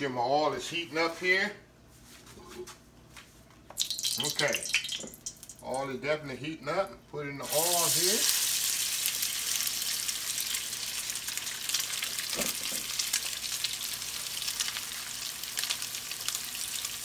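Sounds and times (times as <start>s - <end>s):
food sizzling in hot oil: 3.8s - 5.6s, 7.4s - 17.0s.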